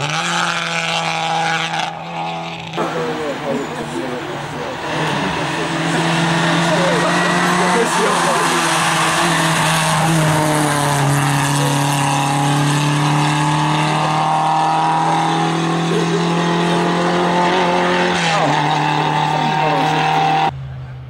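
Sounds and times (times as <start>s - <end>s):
rally car engine at high revs: 0.0s - 20.6s.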